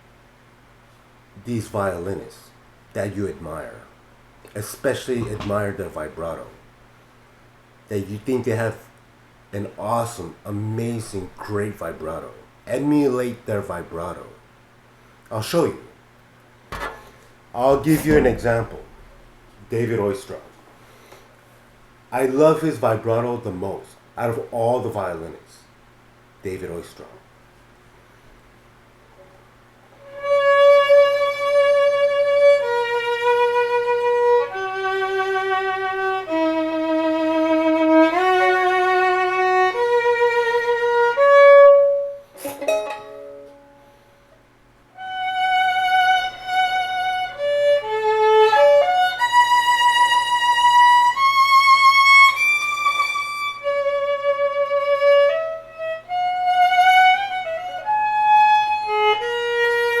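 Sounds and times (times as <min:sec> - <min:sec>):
solo violin slow melody: 0:30.0 - 0:42.2, 0:45.0 - 1:00.0.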